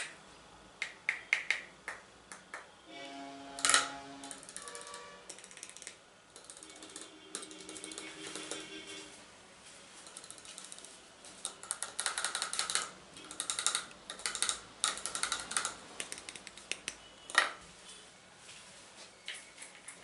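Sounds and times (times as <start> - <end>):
tapping and clicking on hard objects: 0.8 - 2.7, 11.4 - 17.6.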